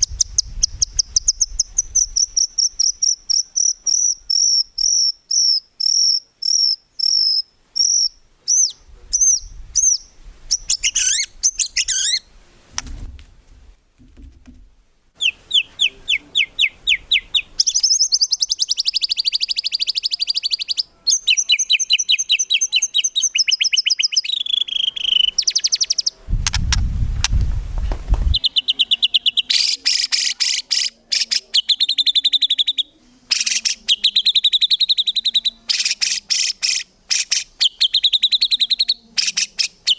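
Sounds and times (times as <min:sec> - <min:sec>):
songbird singing: 0:00.0 - 0:12.9, 0:14.5 - 0:27.4, 0:28.0 - 0:39.9
brief low rumble: 0:26.3 - 0:28.4.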